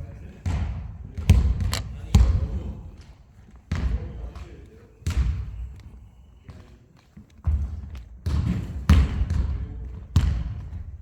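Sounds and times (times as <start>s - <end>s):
basketballs bouncing on wooden floor: 0.4s - 2.7s, 3.7s - 5.7s, 7.4s - 11.0s.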